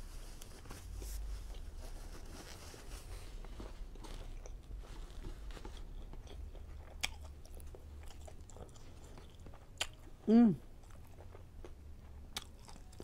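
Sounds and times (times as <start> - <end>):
chewing with wet mouth sounds: 3.9 - 13.0.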